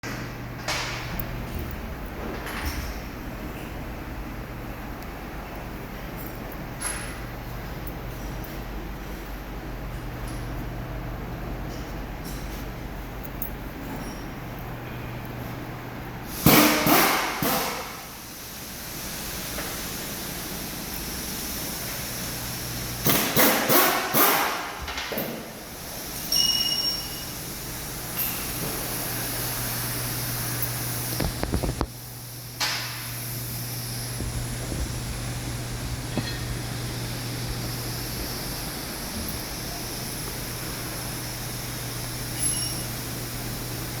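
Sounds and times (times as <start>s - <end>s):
brief high squeak: 26.3s - 27.3s, 42.4s - 42.9s.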